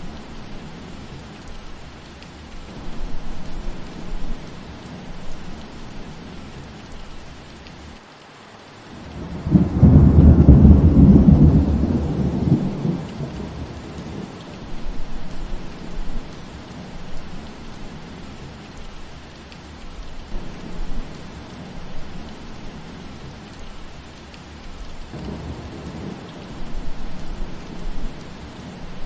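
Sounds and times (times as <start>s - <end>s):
steady rain falling: 0.0s - 29.0s
thunder rumbling: 9.0s - 18.9s, 20.2s - 29.0s.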